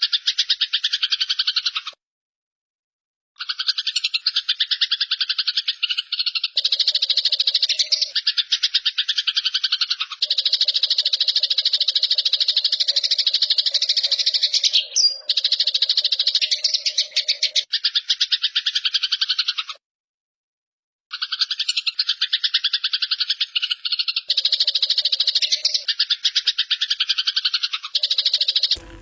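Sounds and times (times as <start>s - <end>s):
sparrows rattling chatter: 3.4s - 19.8s, 21.1s - 29.0s.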